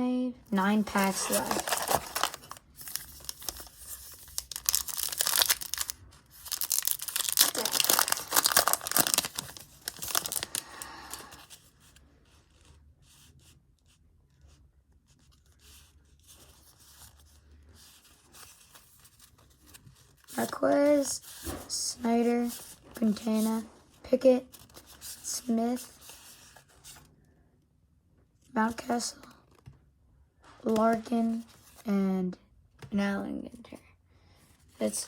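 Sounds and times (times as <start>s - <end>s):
cards being handled: 0.6s - 11.5s
wrapper tearing and crinkling: 0.8s - 11.4s.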